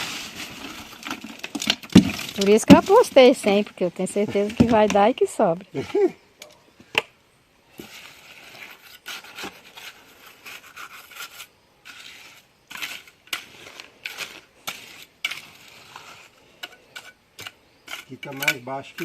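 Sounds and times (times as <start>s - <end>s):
metal tool scraping wet mortar: 7.8s - 19.0s.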